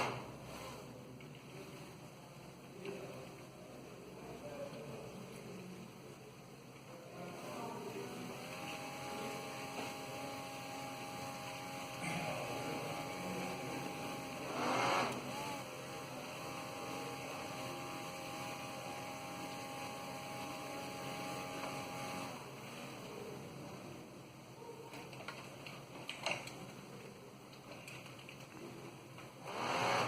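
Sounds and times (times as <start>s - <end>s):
electric propeller motor whine: 8.3s - 22.4s.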